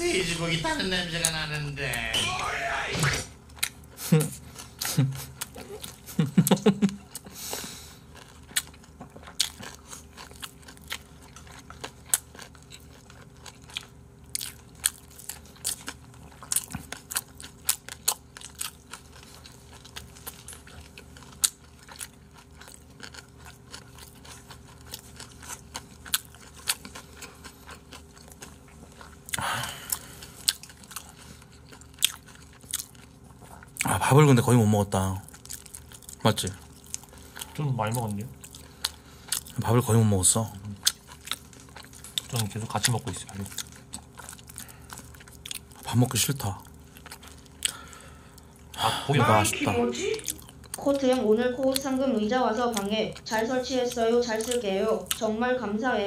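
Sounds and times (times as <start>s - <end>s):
crunchy chewing: 3.5s - 34.0s, 35.0s - 48.8s.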